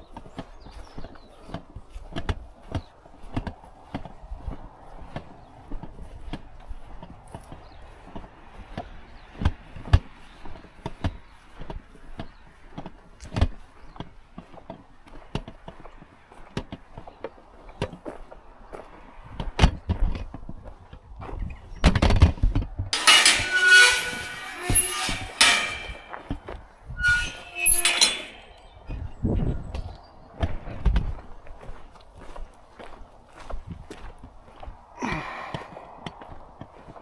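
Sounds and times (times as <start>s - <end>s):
loud multi-pitched squealing: 23.0s - 26.2s, 27.0s - 28.6s.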